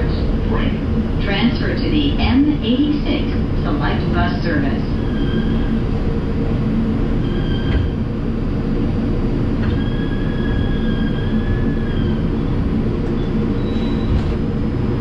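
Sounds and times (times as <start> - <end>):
subway car rumble and hum: 0.0 - 15.0
wheel-on-rail squeals: 5.0 - 5.7, 7.2 - 8.0, 9.6 - 12.5, 13.1 - 14.3.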